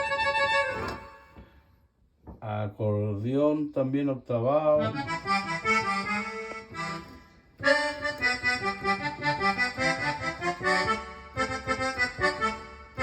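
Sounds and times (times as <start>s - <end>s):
accordion sample on keyboard: 0.0s - 1.4s, 4.6s - 13.0s.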